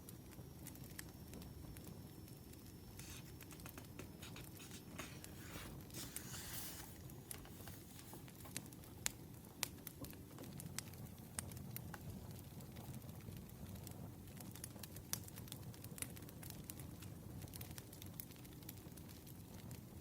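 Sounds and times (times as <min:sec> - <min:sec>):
firewood crackling and popping: 0:00.0 - 0:20.0
papery rustle: 0:03.0 - 0:08.7.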